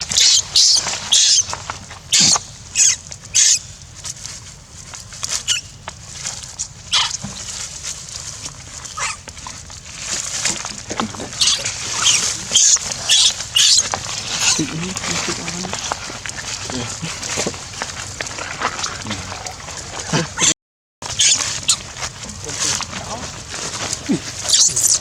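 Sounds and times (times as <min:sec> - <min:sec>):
monkeys squealing: 0:00.0 - 0:03.7, 0:05.4 - 0:05.7, 0:06.9 - 0:07.3, 0:08.8 - 0:09.6, 0:10.4 - 0:16.0, 0:18.4 - 0:20.5, 0:21.1 - 0:25.0.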